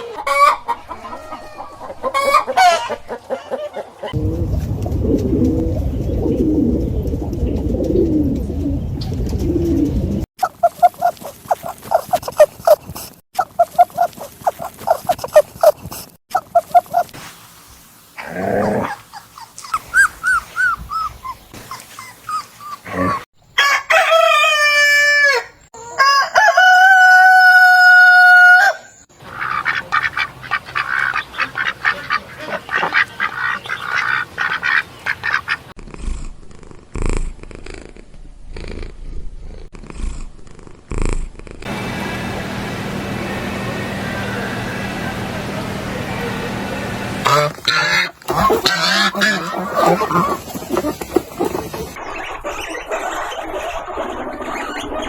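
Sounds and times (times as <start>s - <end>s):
rooster crowing: 0.0s - 3.9s, 23.6s - 29.0s
chicken clucking: 0.0s - 4.2s, 43.8s - 55.0s
low rumbling animal call: 22.3s - 23.3s
rattling animal calls: 47.2s - 55.0s.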